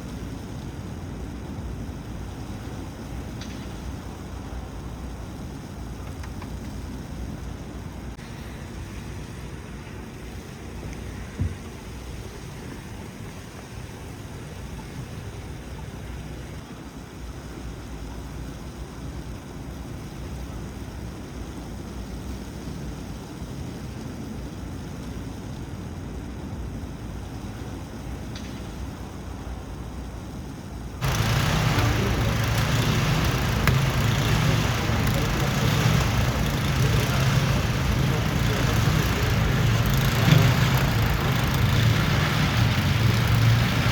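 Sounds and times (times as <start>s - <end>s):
city traffic rumble: 30.8s - 43.9s
low engine-like hum: 31.0s - 43.9s.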